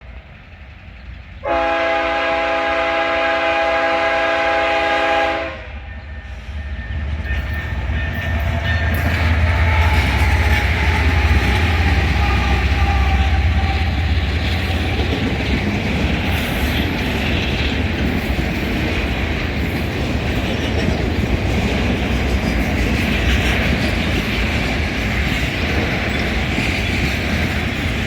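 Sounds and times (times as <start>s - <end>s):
train rumbling on rails: 0.0s - 28.0s
locomotive air horn: 1.4s - 6.5s, 8.9s - 15.0s.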